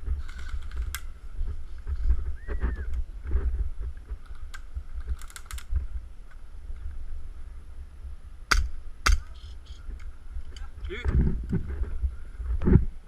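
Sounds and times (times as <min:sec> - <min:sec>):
microphone handling noise: 0:00.0 - 0:06.0, 0:09.2 - 0:13.0
wind rumble: 0:00.0 - 0:13.0.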